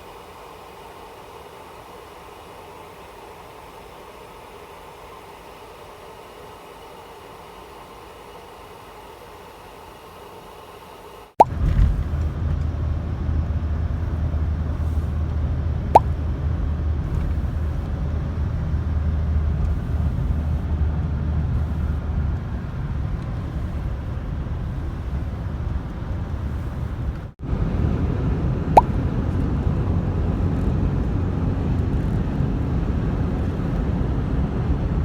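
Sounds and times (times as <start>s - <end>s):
vehicle rumble from inside: 11.4s - 35.0s.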